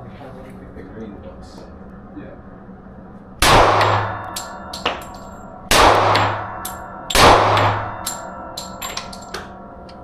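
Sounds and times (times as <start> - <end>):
gunshots echoing: 3.4 - 8.9.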